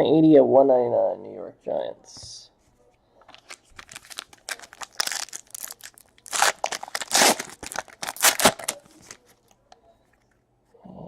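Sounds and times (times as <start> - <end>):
card pack wrapper tearing and crinkling: 3.3 - 9.3.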